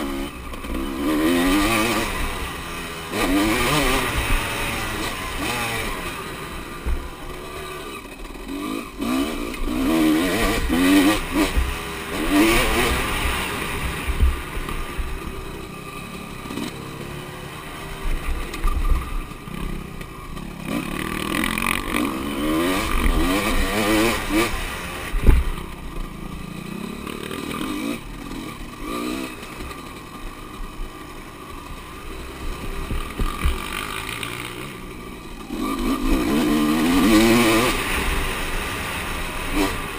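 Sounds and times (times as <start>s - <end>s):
motocross bike engines revving: 0.0s - 39.9s
sharp thump: 25.2s - 25.6s.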